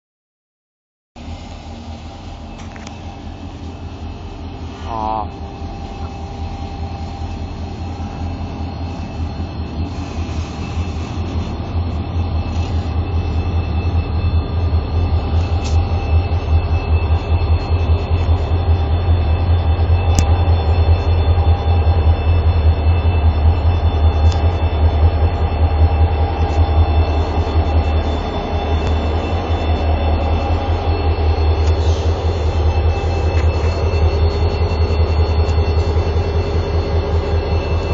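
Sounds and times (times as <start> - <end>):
locomotive engines revving: 22.6 - 37.9.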